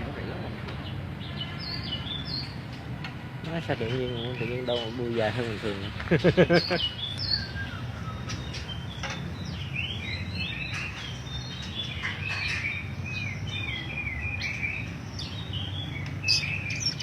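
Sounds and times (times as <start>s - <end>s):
songbird whistling: 6.7s - 17.0s.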